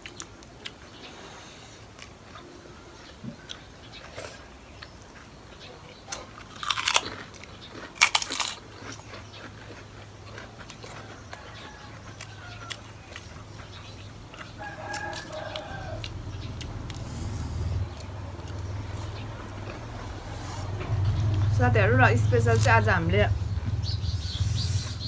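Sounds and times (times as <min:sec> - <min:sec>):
crunching bite of food: 0:06.1 - 0:21.4
rooster crowing: 0:10.8 - 0:13.4, 0:14.3 - 0:21.5
low hum: 0:14.0 - 0:25.0.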